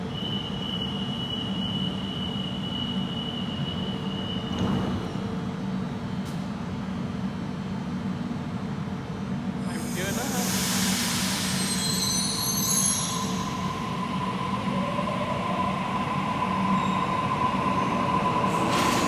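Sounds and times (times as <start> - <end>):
electric train rumble: 9.2 - 19.0.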